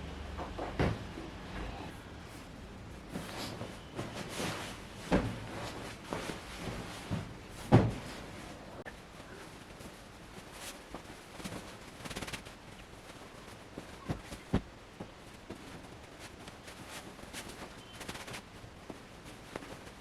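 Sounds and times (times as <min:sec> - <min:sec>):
household knocks and clatters: 0:00.4 - 0:01.4, 0:03.1 - 0:08.5.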